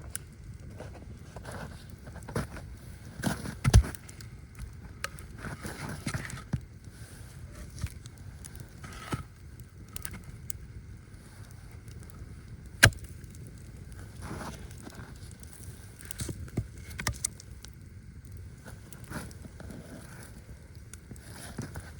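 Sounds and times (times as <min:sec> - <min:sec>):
rustling and handling noise: 0:11.2 - 0:17.9, 0:18.5 - 0:21.9.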